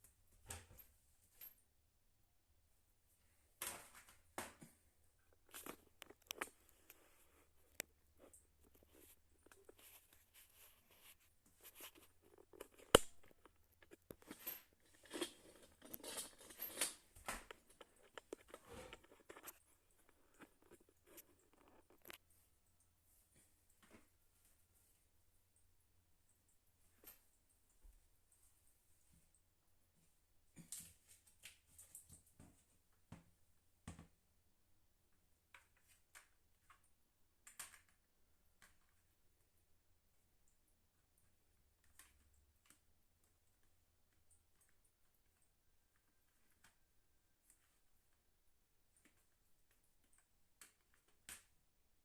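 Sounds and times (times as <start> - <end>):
faint clicks and knocks: 3.6 - 22.3
rustling and scraping: 3.6 - 22.4.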